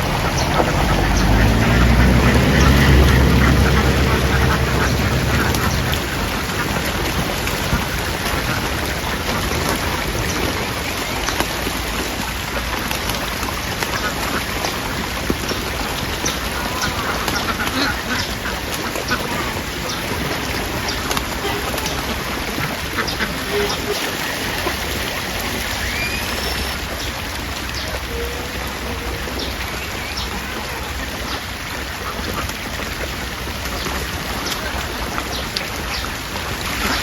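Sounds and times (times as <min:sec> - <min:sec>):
low engine hum: 0:00.0 - 0:08.2
ducks quacking: 0:00.0 - 0:11.2, 0:12.3 - 0:26.8, 0:36.6 - 0:37.0.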